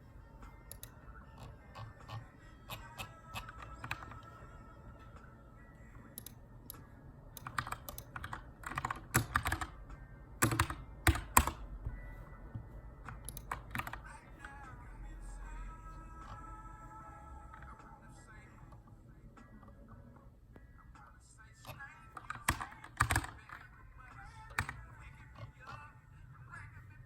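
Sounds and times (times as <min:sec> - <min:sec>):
typing on mechanical keyboard: 0:00.7 - 0:04.3, 0:07.4 - 0:09.8, 0:10.4 - 0:11.6, 0:13.1 - 0:14.1, 0:21.7 - 0:23.7, 0:24.4 - 0:25.8.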